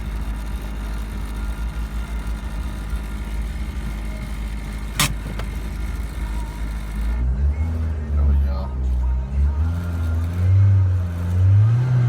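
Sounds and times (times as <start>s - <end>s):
car engine idling: 0.0s - 12.0s
vibration noise in car: 0.0s - 12.0s
sharp click: 4.9s - 5.6s.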